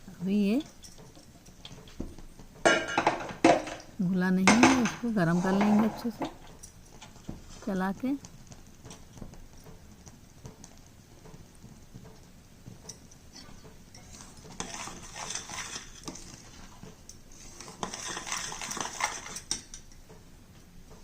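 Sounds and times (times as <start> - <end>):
spoon scraping and clinking pan: 2.6 - 7.2, 13.8 - 20.0.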